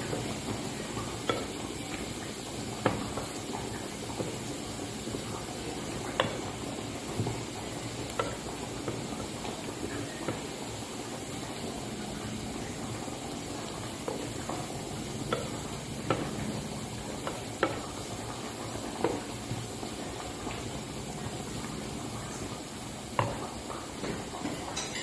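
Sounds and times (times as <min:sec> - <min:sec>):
food sizzling in hot oil: 0:00.0 - 0:25.0
spatula tapping and scraping pan: 0:06.0 - 0:10.5, 0:14.1 - 0:16.5, 0:17.2 - 0:19.6, 0:23.2 - 0:25.0.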